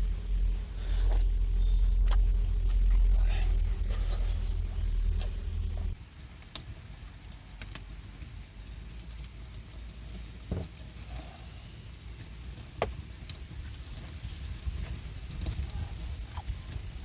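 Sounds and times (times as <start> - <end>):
low rumble: 0.0 - 12.6
sharp clicks and snaps: 7.3 - 8.3.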